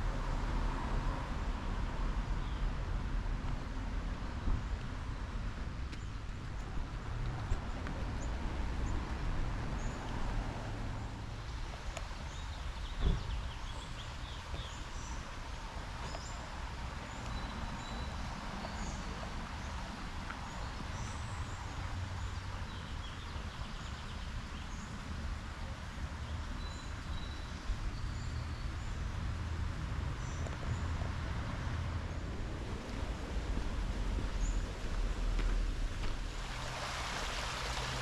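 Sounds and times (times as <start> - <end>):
thump: 13.0 - 13.4.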